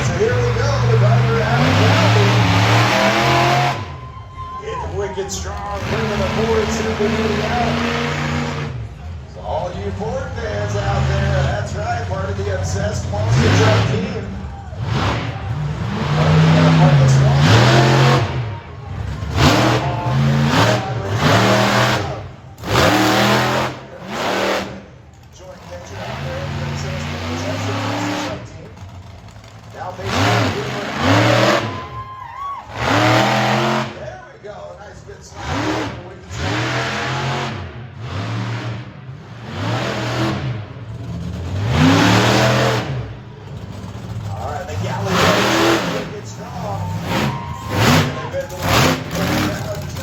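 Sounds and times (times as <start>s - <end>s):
truck engine revving: 0.0s - 4.1s, 4.8s - 50.0s.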